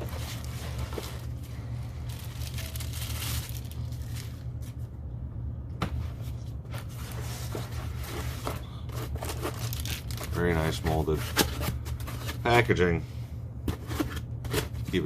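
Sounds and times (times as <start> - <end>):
plastic packaging rustling: 0.0 - 4.9, 6.8 - 12.6
steady low hum: 0.0 - 15.0.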